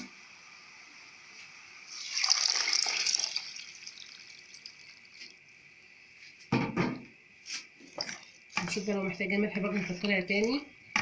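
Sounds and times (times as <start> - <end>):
water sizzling in hot pot: 0.0 - 5.5
knock: 6.5 - 7.0.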